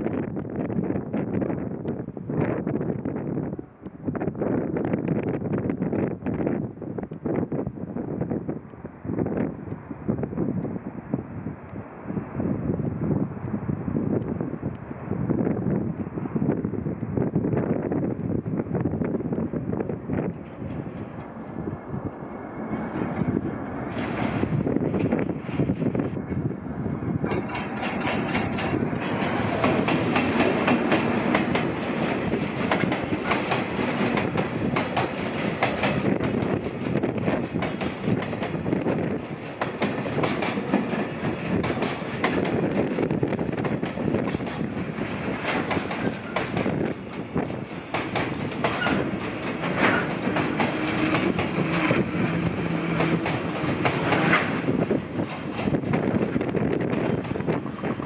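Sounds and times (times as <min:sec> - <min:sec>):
freight train passing: 0:00.0 - 0:58.0
wheels clattering over rail joints: 0:27.1 - 0:58.0.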